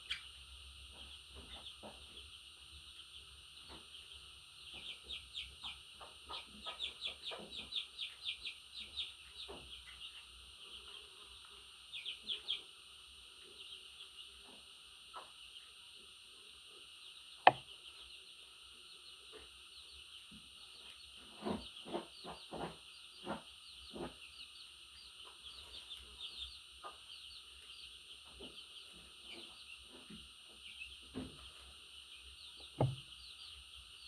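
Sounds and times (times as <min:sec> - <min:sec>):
knocks or taps: 0:32.8 - 0:33.0.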